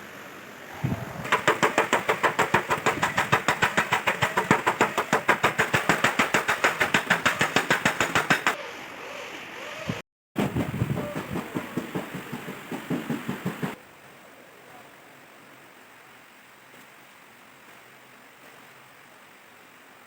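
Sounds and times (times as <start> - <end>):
hammer tapping sheet metal: 1.3 - 8.6.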